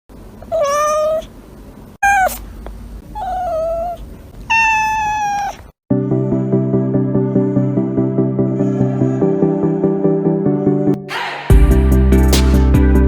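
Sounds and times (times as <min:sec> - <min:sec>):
cat meowing: 0:00.5 - 0:01.3, 0:02.0 - 0:02.4, 0:03.1 - 0:05.7.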